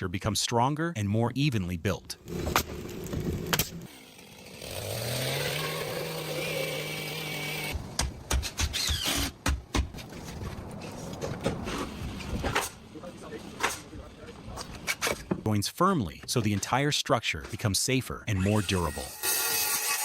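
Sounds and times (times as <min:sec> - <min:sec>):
power saw running: 0:03.4 - 0:07.8.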